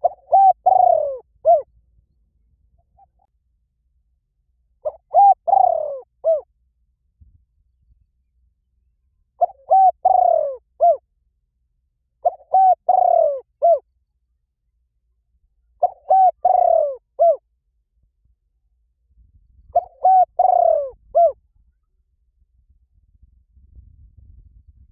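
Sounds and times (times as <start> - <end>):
bird cooing: 0.0 - 1.7, 4.8 - 6.5, 9.4 - 11.0, 12.2 - 13.9, 15.8 - 17.4, 19.7 - 21.4.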